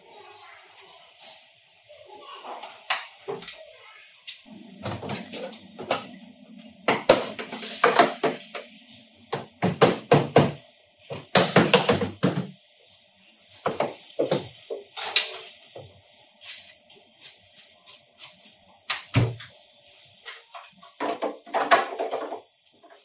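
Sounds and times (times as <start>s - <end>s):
tools knocking and clattering: 6.9s - 8.7s, 20.2s - 22.5s.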